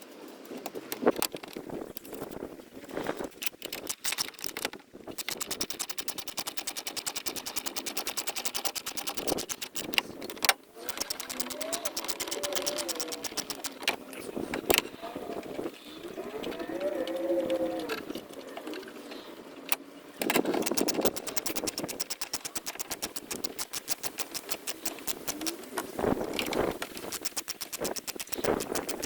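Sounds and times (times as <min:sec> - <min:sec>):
rapid ratcheting clicks: 0:03.3 - 0:14.8, 0:20.2 - 0:29.0.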